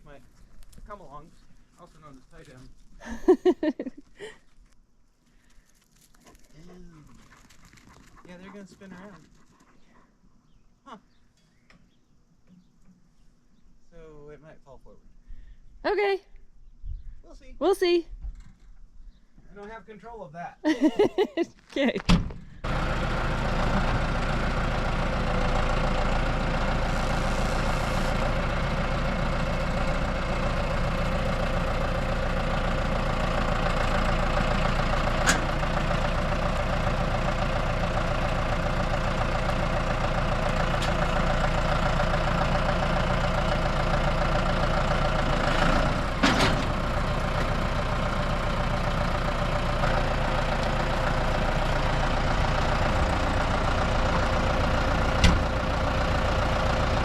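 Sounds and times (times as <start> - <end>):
farm machine engine running: 22.6 - 57.0.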